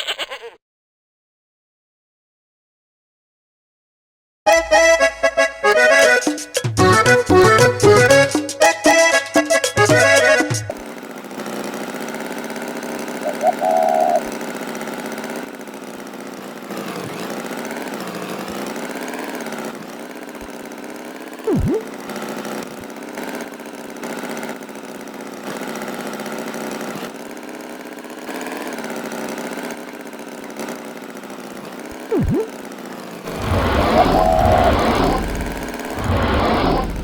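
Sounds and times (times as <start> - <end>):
buzzy engine hum: 4.5 - 29.7, 31.5 - 37.0
short sweeping tones: 21.5 - 22.0, 32.1 - 32.6, 33.3 - 37.0.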